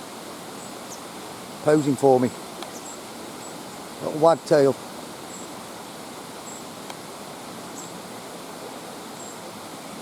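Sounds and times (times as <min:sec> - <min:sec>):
stream and waterfall rushing: 0:00.0 - 0:10.0.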